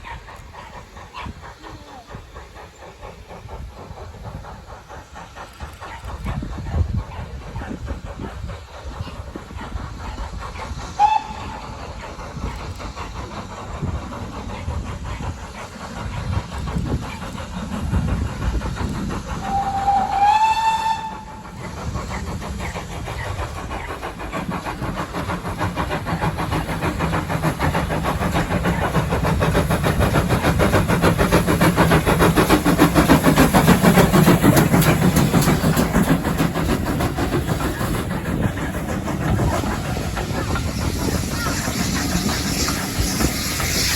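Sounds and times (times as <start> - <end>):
train running: 0.0 - 43.9
locomotive whistle: 11.0 - 11.7, 19.4 - 21.5.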